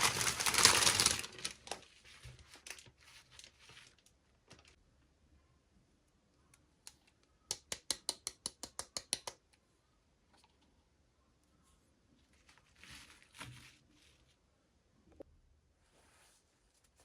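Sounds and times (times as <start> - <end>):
sharp clicks of toy packaging: 0.0 - 1.8
packaging rustle: 0.0 - 4.8.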